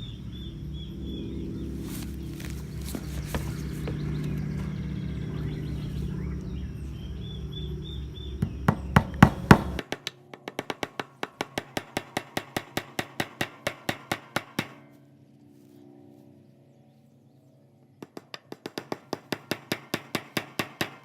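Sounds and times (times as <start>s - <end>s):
hammer blows on wood: 8.4s - 14.8s.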